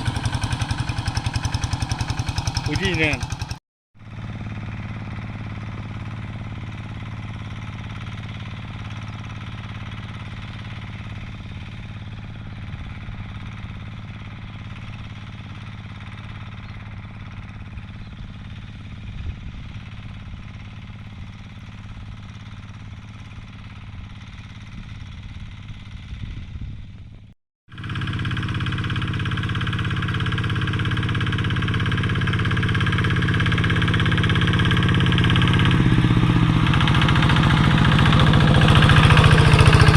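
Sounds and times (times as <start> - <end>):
hand tractor diesel engine running: 0.0 - 3.6, 27.8 - 39.9.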